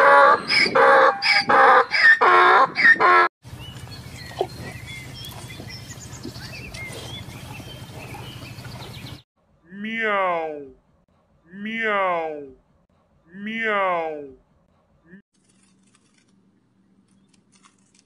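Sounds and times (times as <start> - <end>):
donkey braying: 0.0 - 3.3.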